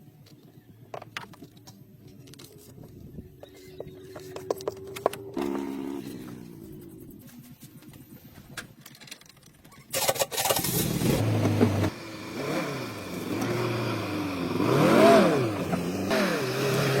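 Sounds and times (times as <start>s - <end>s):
car engine starting and revving: 5.0s - 7.4s, 9.9s - 17.0s.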